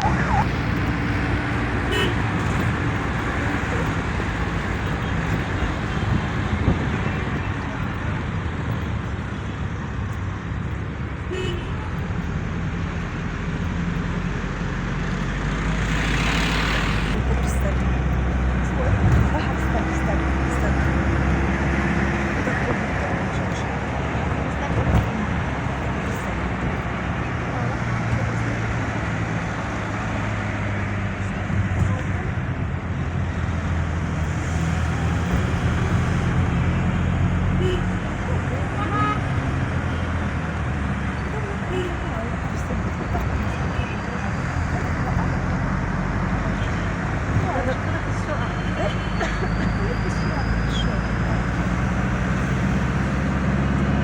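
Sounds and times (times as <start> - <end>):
wind rumble on microphone: 0.0 - 11.2
road traffic rumble: 0.0 - 54.0
car horn toot: 1.8 - 2.7, 11.3 - 11.9, 37.5 - 38.0, 38.7 - 39.4, 41.7 - 42.1.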